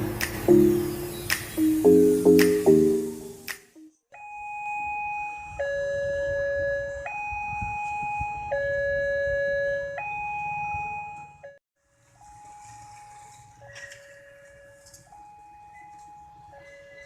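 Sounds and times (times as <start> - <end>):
level crossing two-tone alarm: 4.1 - 11.6, 12.2 - 17.0.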